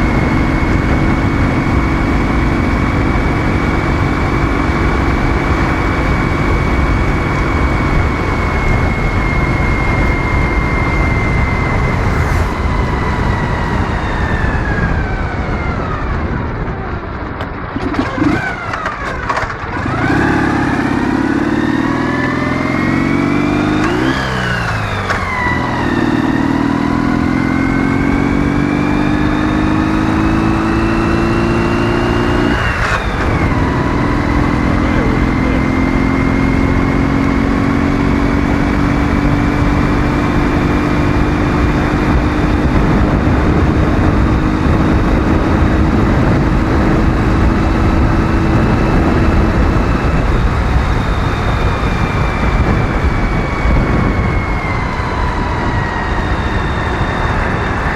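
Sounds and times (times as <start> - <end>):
motorcycle engine accelerating: 0.0 - 57.9
engine knocks: 16.2 - 20.3.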